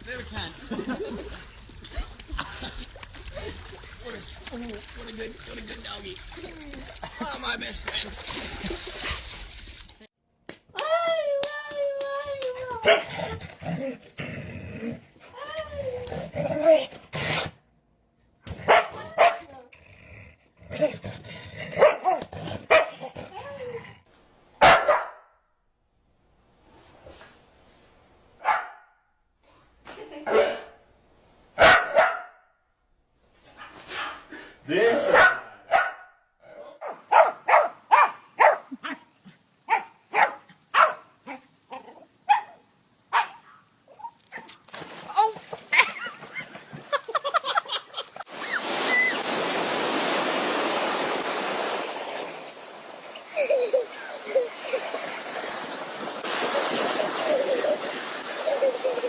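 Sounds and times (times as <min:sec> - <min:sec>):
dog barking: 0:12.8 - 0:13.1, 0:18.6 - 0:19.5, 0:21.8 - 0:23.1, 0:24.6 - 0:25.3, 0:28.4 - 0:28.9, 0:30.3 - 0:30.8, 0:31.6 - 0:32.4, 0:35.0 - 0:38.7, 0:39.7 - 0:41.4, 0:42.3 - 0:43.6.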